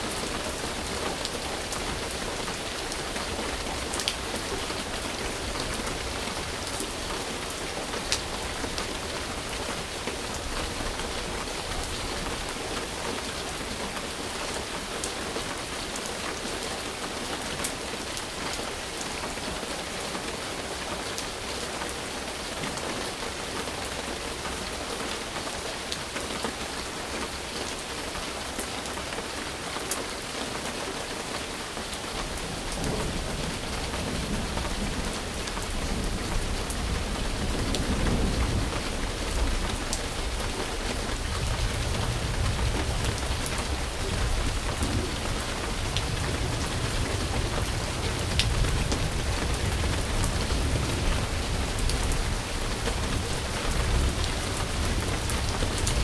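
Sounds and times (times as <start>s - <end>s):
heavy rain: 0.0s - 56.0s
low rumble of thunder: 32.2s - 56.0s.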